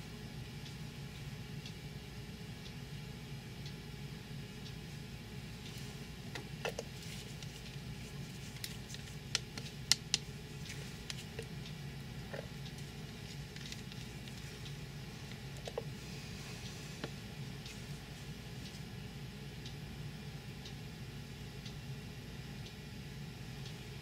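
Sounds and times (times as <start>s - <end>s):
steady low hum: 0.0s - 24.0s
utensils tapping and clicking: 6.3s - 11.5s.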